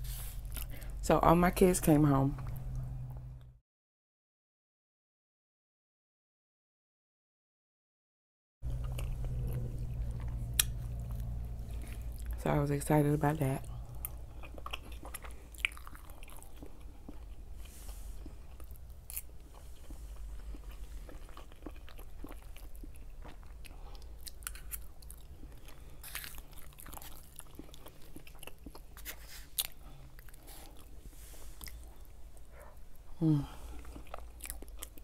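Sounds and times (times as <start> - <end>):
person chewing food: 0.1 - 1.0, 8.6 - 12.4, 13.6 - 35.0.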